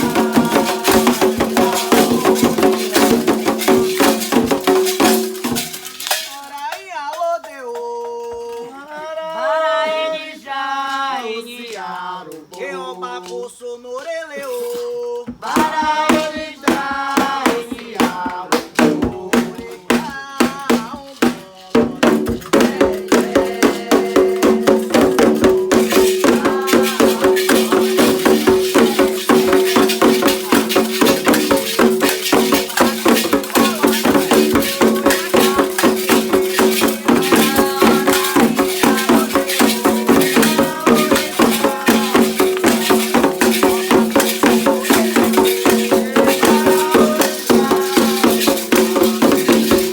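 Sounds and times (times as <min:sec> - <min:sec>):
rattles shaken: 0:00.0 - 0:08.7, 0:20.6 - 0:49.9
people singing: 0:00.0 - 0:49.9.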